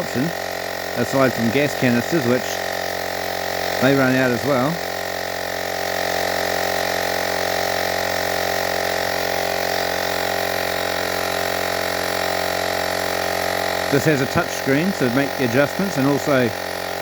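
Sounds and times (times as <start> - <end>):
electric tyre pump buzzing: 0.0 - 17.0.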